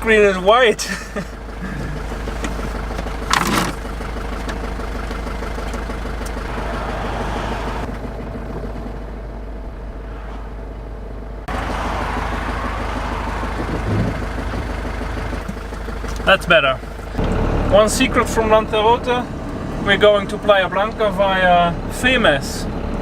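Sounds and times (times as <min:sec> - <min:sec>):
vehicle engine and road noise: 0:00.0 - 0:23.0.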